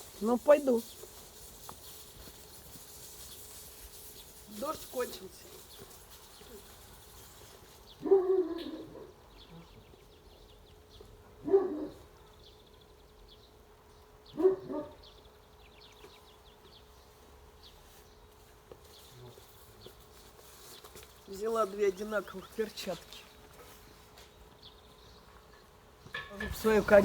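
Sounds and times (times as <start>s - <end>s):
dog barking: 8.0s - 9.2s, 11.4s - 12.0s, 14.3s - 15.0s.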